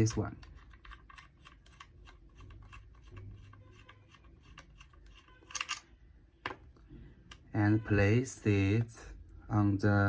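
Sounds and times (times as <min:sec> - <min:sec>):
plastic clicks and rattles: 0:00.0 - 0:05.9.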